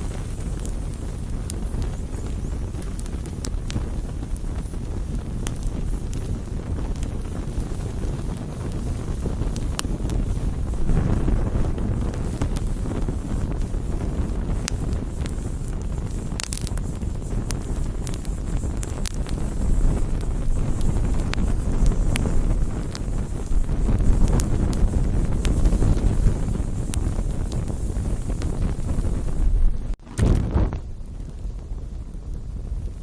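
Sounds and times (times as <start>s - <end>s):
campfire crackles and pops: 0.0s - 33.0s
campfire rumble: 0.0s - 33.0s.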